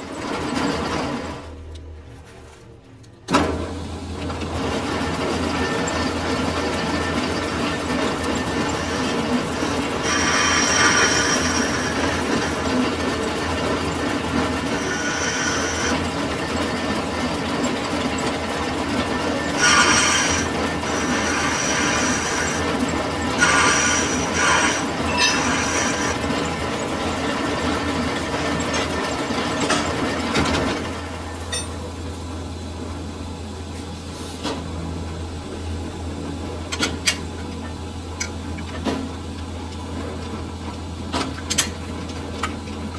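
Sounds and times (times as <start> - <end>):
machine hum: 0.0 - 42.9
lathe cutting tool squealing: 5.5 - 17.0, 19.1 - 27.6.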